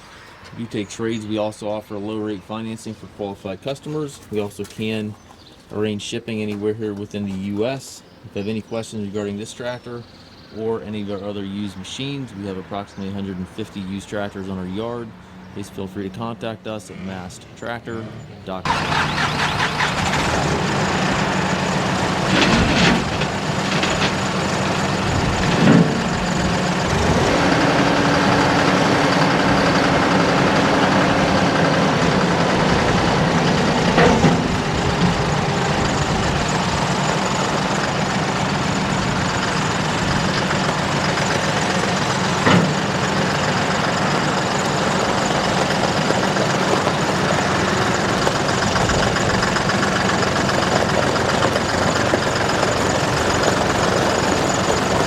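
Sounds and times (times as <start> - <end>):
tractor diesel engine running: 17.9 - 55.0.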